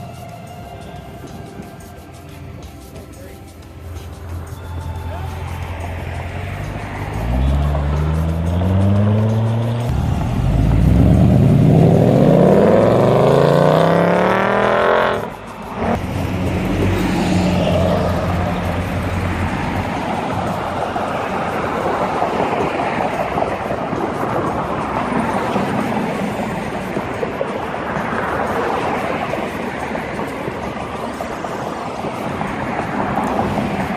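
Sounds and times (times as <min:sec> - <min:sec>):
rushing noise: 0:00.0 - 0:33.9
car engine accelerating: 0:04.6 - 0:28.8.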